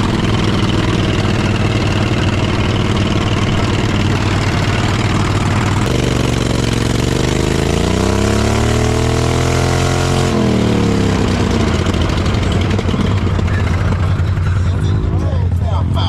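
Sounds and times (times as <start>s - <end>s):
vehicle engine idling and revving: 0.0s - 16.0s.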